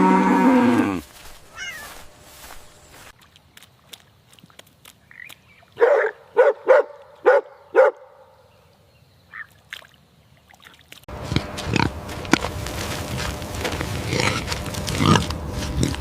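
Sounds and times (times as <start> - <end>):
animal calling: 0.0 - 2.0, 13.6 - 16.0
animal sounds: 13.1 - 16.0.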